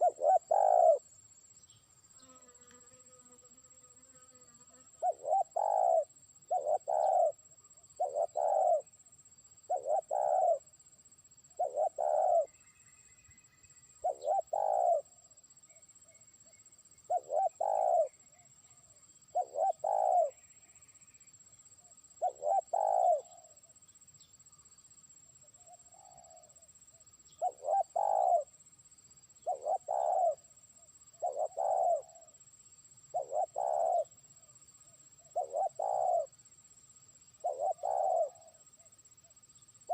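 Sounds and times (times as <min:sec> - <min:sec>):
dove cooing: 0:00.0 - 0:01.0, 0:05.0 - 0:07.4, 0:08.0 - 0:08.9, 0:09.7 - 0:10.6, 0:11.6 - 0:12.5, 0:14.0 - 0:15.1, 0:17.1 - 0:18.1, 0:19.3 - 0:20.4, 0:22.2 - 0:23.5, 0:27.4 - 0:28.5, 0:29.4 - 0:30.4, 0:31.2 - 0:32.3, 0:33.1 - 0:34.1, 0:35.2 - 0:36.3, 0:37.4 - 0:38.6.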